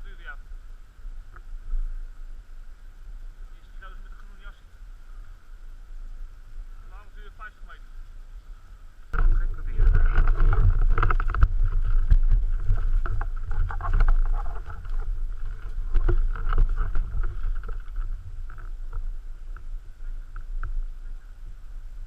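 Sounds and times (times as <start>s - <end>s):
low rumble on microphone: 0.0s - 22.0s.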